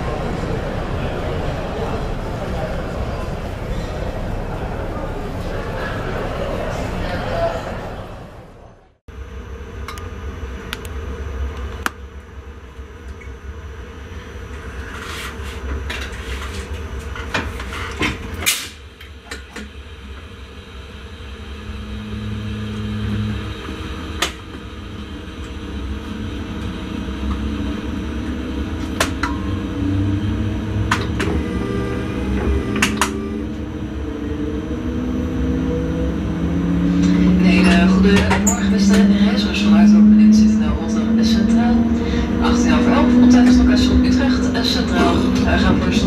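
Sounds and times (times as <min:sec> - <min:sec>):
train rumble: 0:00.0 - 0:46.0
electric motor whine rising: 0:21.6 - 0:24.2, 0:29.6 - 0:38.1.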